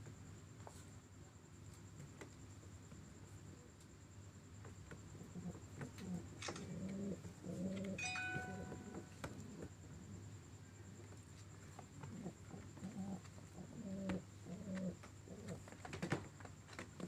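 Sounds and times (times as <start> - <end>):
pigeons cooing: 5.1 - 8.0, 12.0 - 16.0.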